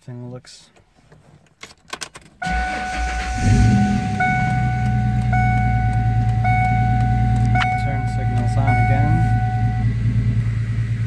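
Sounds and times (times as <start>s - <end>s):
car engine starting and idling: 0.7s - 11.0s
ignition clicks: 0.8s - 10.0s
dashboard warning chime: 2.4s - 10.0s.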